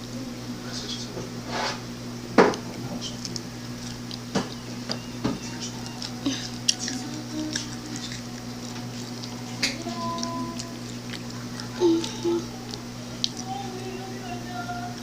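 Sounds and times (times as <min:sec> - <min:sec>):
mouth clicks: 0:02.5 - 0:13.6.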